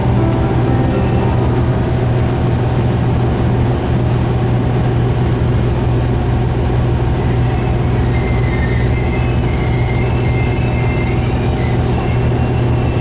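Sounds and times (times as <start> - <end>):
diesel railcar engine hum: 0.0 - 13.0
high wheel squeal: 7.1 - 13.0.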